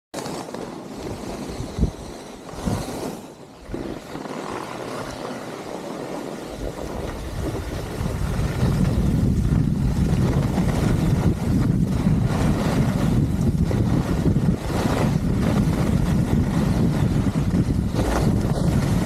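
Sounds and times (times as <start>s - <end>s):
wind buffeting microphone: 0.9s - 3.0s, 6.4s - 19.0s.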